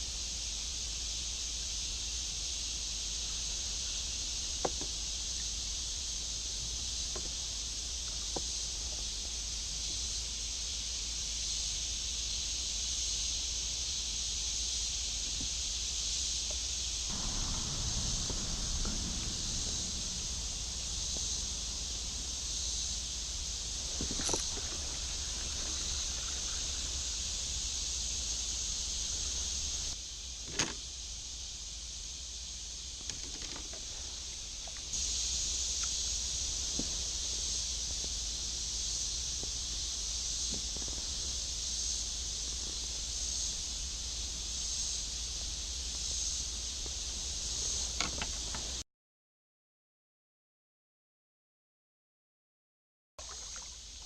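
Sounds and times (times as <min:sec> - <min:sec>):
insect chorus: 0:00.0 - 0:48.8, 0:53.2 - 0:54.0
low rumble: 0:16.9 - 0:30.0.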